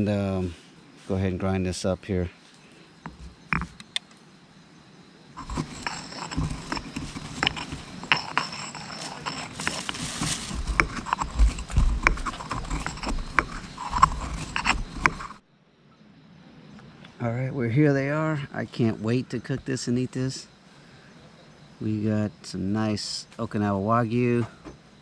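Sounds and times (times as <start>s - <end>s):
spices being ground by hand: 5.4s - 15.4s.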